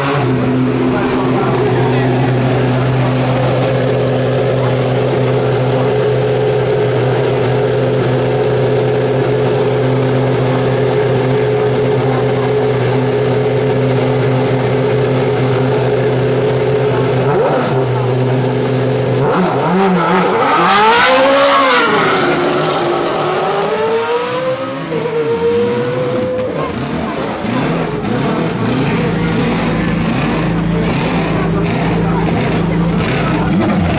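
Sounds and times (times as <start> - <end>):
engine drone: 0.0 - 33.9
race car passing at full throttle: 19.3 - 33.9.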